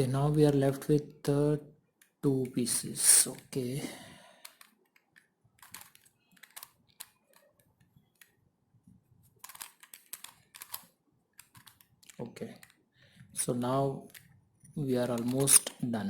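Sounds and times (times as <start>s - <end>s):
plastic puzzle cube clicking: 4.4s - 8.4s, 9.3s - 12.8s, 14.0s - 14.4s, 15.0s - 15.8s.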